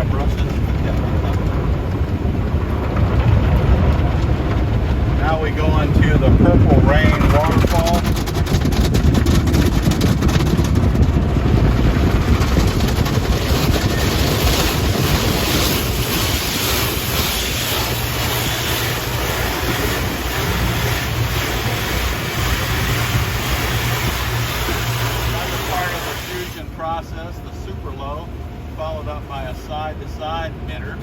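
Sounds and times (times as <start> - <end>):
car wash machinery running: 0.0 - 31.0
water pouring over a truck: 0.0 - 31.0
low steady hum: 10.0 - 31.0.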